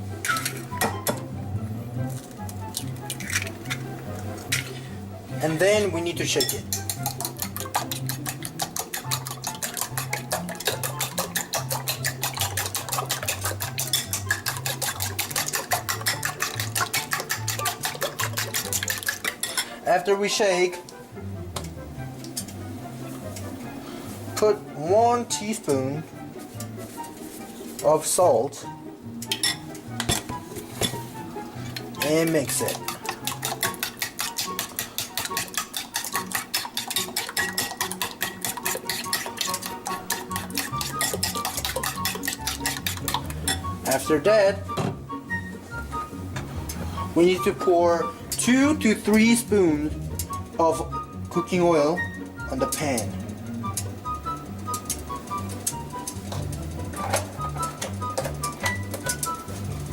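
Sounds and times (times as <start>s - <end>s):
utensil beating eggs in bowl: 5.4s - 20.0s, 30.1s - 44.5s, 46.6s - 59.9s.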